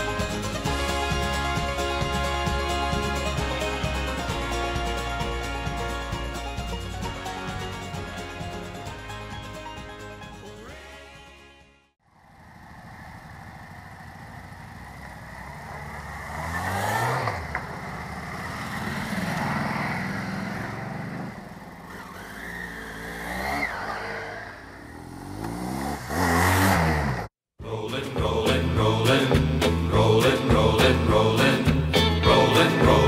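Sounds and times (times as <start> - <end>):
motorcycle engine revving: 12.1 - 33.0.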